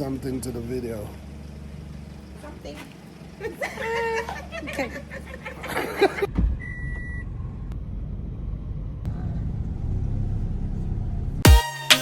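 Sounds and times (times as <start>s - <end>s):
car driving rumble: 0.0s - 11.5s
short beep: 6.6s - 7.3s.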